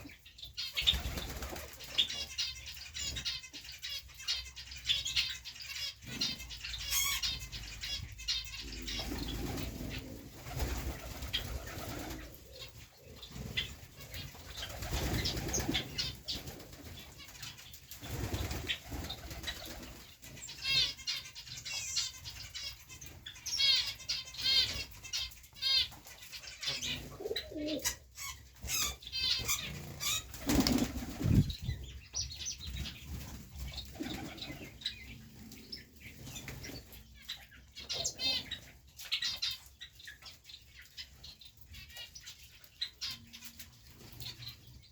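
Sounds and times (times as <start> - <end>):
small birds chirping: 0.0 - 44.9
pigeons cooing: 6.0 - 17.2, 26.6 - 32.0, 32.6 - 39.6
pigeon wings flapping: 30.3 - 31.4.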